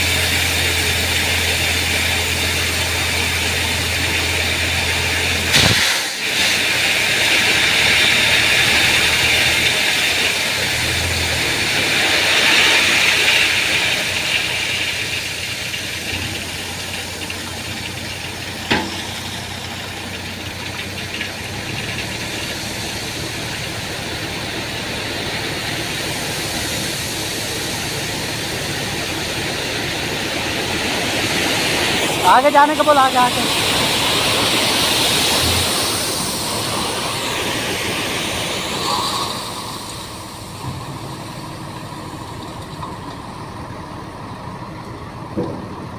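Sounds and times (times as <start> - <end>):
heavy vehicle engine running: 0.0 - 45.9
loud even hiss: 5.4 - 10.0.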